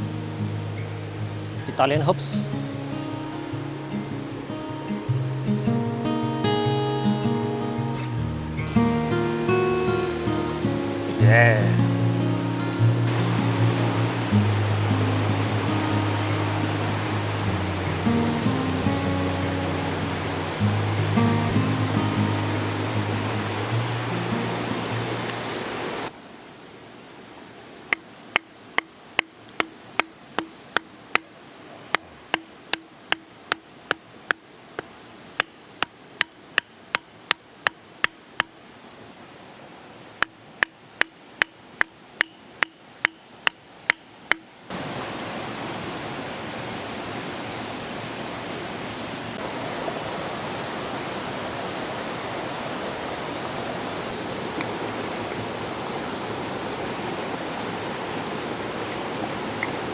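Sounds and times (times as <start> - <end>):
river rushing: 0.0 - 59.9
sharp knocks: 27.9 - 31.3.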